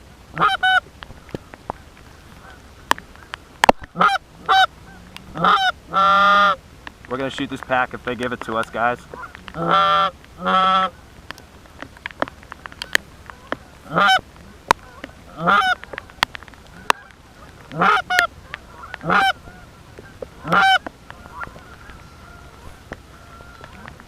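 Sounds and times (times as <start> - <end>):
goose honking: 0.3 - 6.6, 7.3 - 11.5, 12.7 - 24.0
sharp clicks: 11.3 - 13.6.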